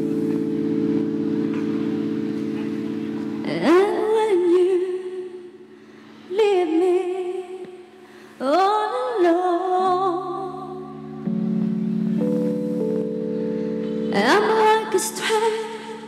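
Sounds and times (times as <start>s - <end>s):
sustained backing chords: 0.0s - 8.0s, 9.6s - 16.0s
wordless singing with vibrato: 3.4s - 11.3s, 13.6s - 16.0s.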